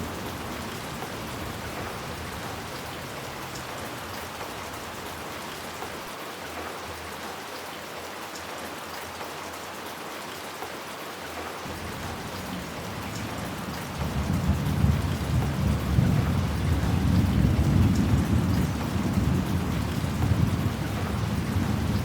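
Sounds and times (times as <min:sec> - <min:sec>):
low rumble of thunder: 0:00.0 - 0:05.0, 0:11.7 - 0:22.0
steady rain falling: 0:00.0 - 0:22.0.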